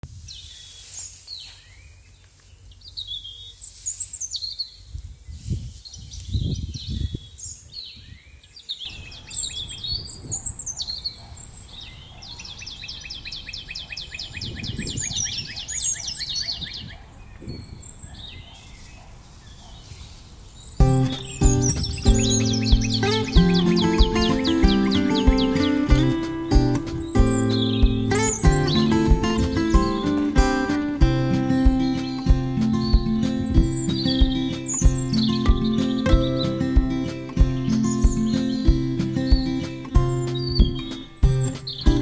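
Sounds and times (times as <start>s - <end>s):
birds singing and calling: 0.3s - 42.0s
bird trill: 8.8s - 18.7s, 20.7s - 42.0s.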